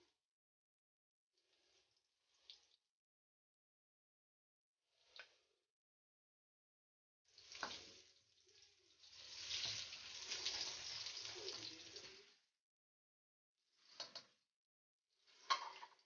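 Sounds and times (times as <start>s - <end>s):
tap water running and splashing: 7.3s - 12.3s, 13.9s - 14.3s.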